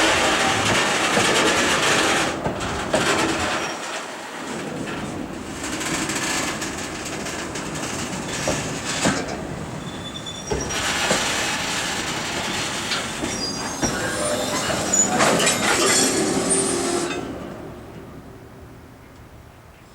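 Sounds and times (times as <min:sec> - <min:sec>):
freight train wagons rolling: 0:00.0 - 0:19.9
high-pitched wheel squeals: 0:09.8 - 0:11.1, 0:12.4 - 0:17.3.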